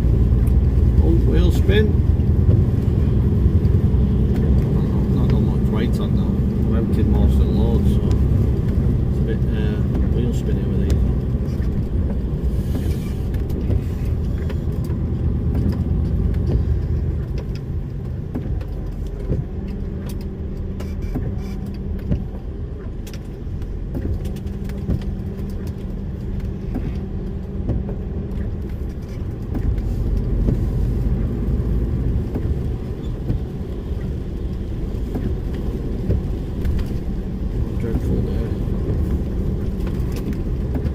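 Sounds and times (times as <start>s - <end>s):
lorry diesel engine running: 0.0s - 40.9s
road noise: 0.0s - 40.9s.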